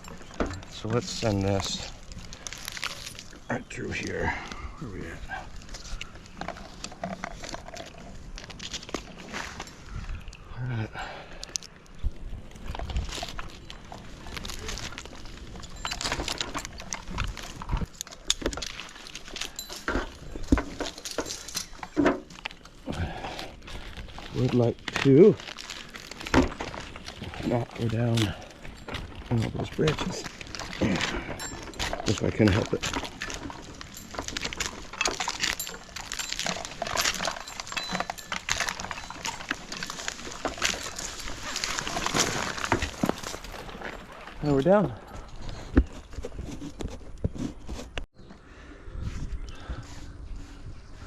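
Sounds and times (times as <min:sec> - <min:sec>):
crackling and rustling: 0:00.0 - 0:10.6, 0:11.3 - 0:48.1
metal climbing hardware clinking: 0:00.0 - 0:10.6, 0:11.4 - 0:48.0.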